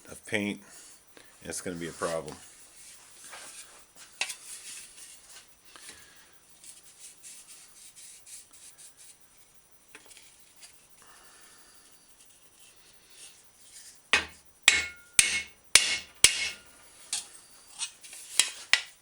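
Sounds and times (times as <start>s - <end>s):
sharp knock: 14.2s - 16.6s.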